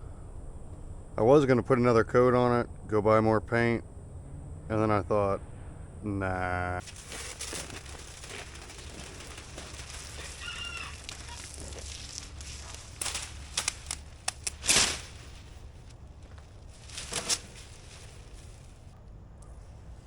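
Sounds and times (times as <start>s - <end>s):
short crackling rustles: 6.8s - 19.0s
chicken calling: 7.0s - 15.9s.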